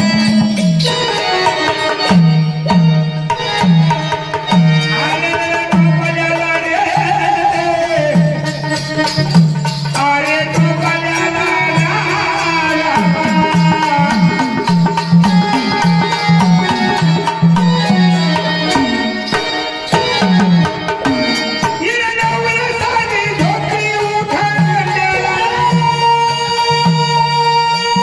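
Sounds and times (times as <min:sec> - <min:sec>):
hand drums: 0:00.0 - 0:28.0
melody instrument: 0:07.8 - 0:26.4.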